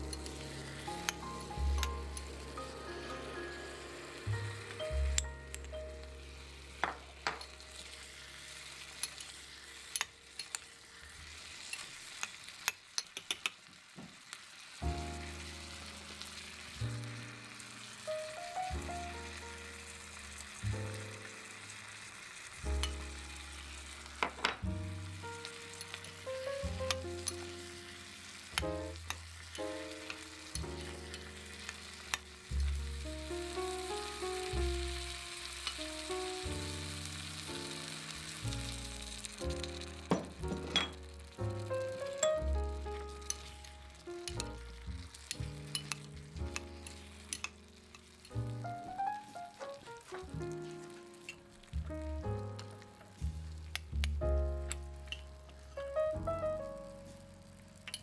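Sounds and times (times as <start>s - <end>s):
background music with bass: 0.0s - 7.2s, 24.6s - 27.8s, 32.5s - 37.7s, 38.4s - 47.0s, 51.8s - 57.8s
vegetables sizzling in a pot: 0.0s - 58.0s
metal spoon clicking on pot: 12.2s - 13.6s.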